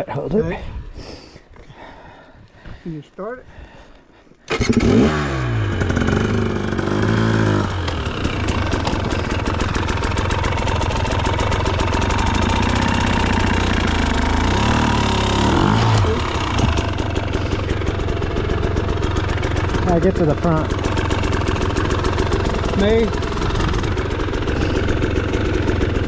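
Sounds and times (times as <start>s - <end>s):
dirt bike engine revving: 4.5s - 26.0s.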